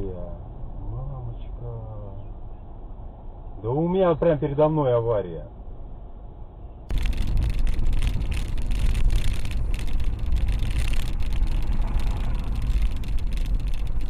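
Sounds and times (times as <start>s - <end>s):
car engine and road rumble: 0.0s - 14.0s
crackle: 6.9s - 14.0s.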